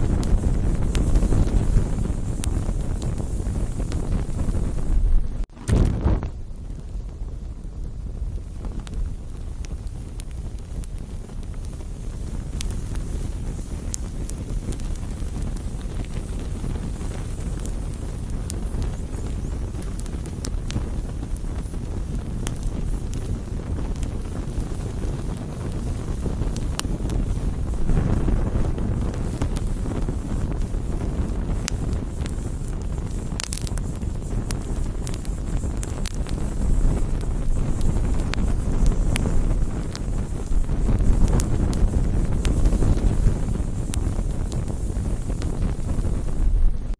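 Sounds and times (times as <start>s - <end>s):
campfire low rush: 0.0s - 46.9s
wood crackling and popping: 0.0s - 46.9s.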